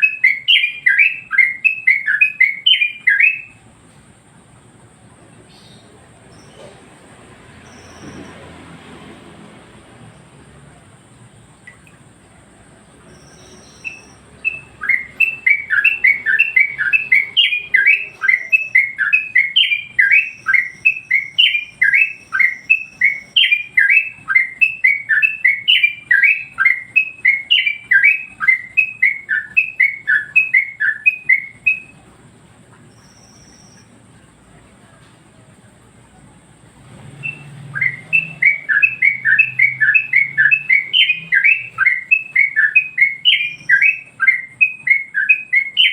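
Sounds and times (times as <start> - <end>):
bird singing descending chirps: 0.0 - 3.6, 7.5 - 8.8, 12.9 - 32.0, 32.9 - 34.1, 36.8 - 45.9.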